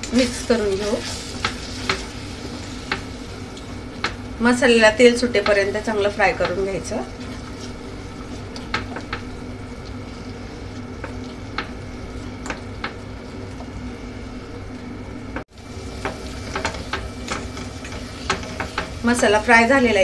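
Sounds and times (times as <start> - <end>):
paste sizzling in oil: 0.1 - 4.0, 15.5 - 20.0
spatula scraping and tapping pan: 1.3 - 2.2, 15.9 - 19.0.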